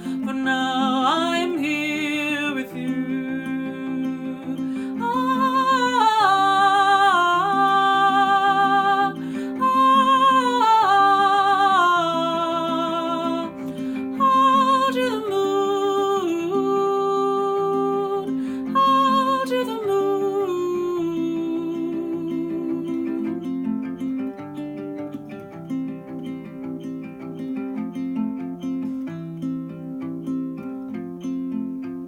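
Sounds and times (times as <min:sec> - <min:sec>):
person singing wordlessly: 0:00.0 - 0:23.6
plucked acoustic guitar: 0:00.0 - 0:32.0.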